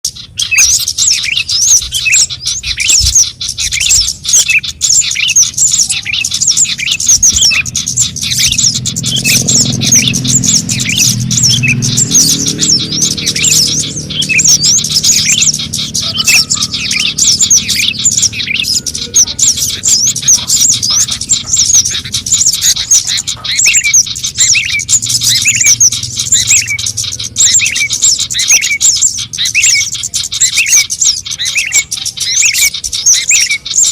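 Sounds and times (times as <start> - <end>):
birds chirping rapidly: 0.0 - 33.9
low rumble: 6.2 - 29.3.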